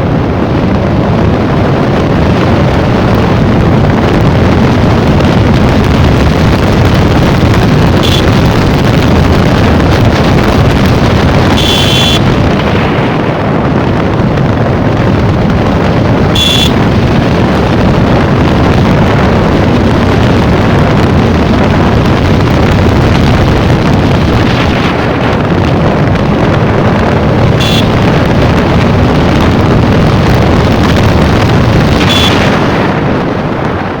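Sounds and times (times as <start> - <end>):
motorcycle engine running: 0.0 - 33.8
wind rushing over microphone: 0.0 - 34.0.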